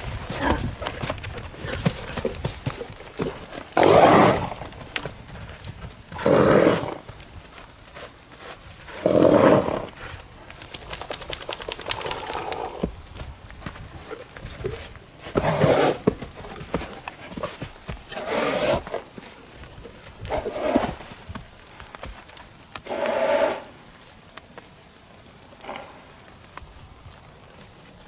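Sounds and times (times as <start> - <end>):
hooves clopping and stamping: 0.0 - 28.0
horse breathy snorts: 14.7 - 16.1, 16.9 - 19.0, 22.8 - 23.7.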